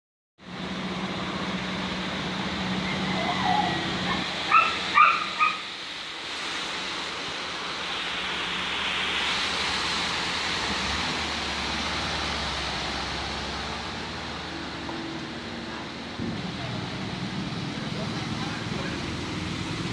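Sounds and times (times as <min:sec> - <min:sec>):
steady rain hiss: 0:00.4 - 0:19.9
dog barking: 0:03.2 - 0:05.7.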